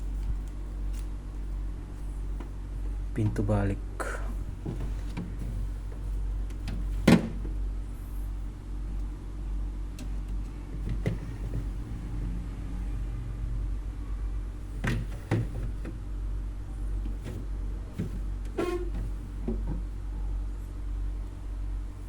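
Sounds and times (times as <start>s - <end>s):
steady low hum: 0.0s - 22.0s
fridge door knocks and clunks: 6.7s - 7.6s.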